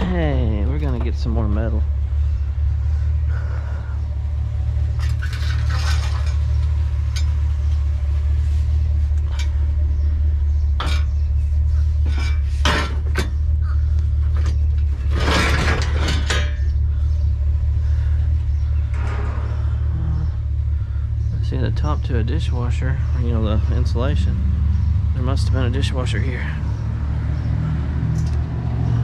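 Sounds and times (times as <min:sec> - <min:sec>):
vehicle running: 0:00.0 - 0:29.0
loose metal clinking: 0:10.6 - 0:16.8.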